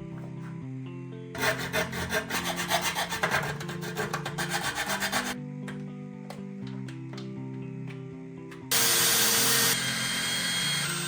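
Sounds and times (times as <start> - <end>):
background music: 0.0 - 11.0
hand tool scraping strokes: 1.4 - 5.4.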